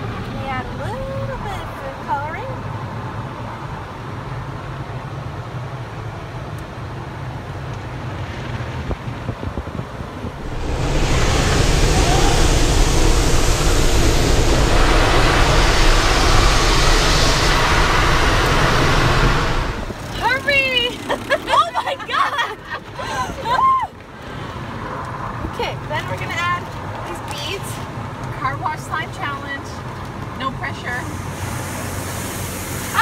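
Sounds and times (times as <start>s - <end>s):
low rumble: 10.2s - 20.3s
water spray hitting car: 10.4s - 20.6s, 30.7s - 33.0s.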